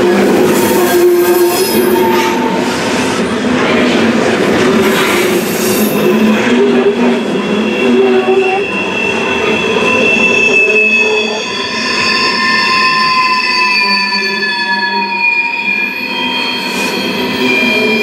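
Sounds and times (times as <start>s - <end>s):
steel wheel squeal: 0.0s - 3.2s, 4.8s - 18.0s
freight train clattering over rails: 0.0s - 7.6s.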